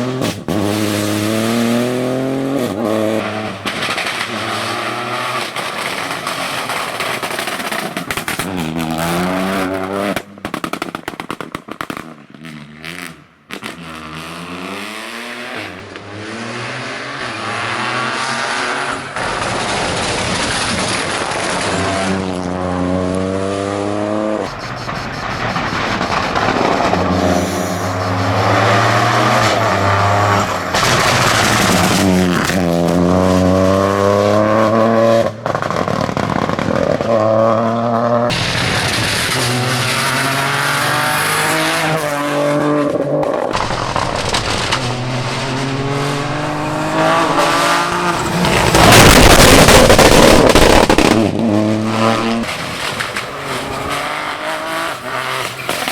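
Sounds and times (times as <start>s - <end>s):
rally car engine revving hard: 0.0s - 10.6s, 11.8s - 55.9s
loud rushing noise: 24.4s - 32.8s, 38.3s - 41.9s, 43.5s - 54.1s.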